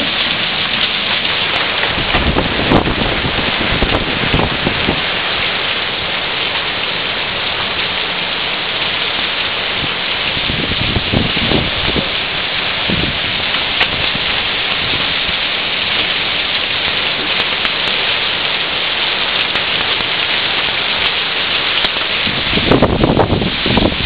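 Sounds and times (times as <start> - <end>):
low thunder rumble: 0.0 - 5.2, 9.8 - 16.2, 21.9 - 24.0
heavy rain and hail: 0.0 - 24.0.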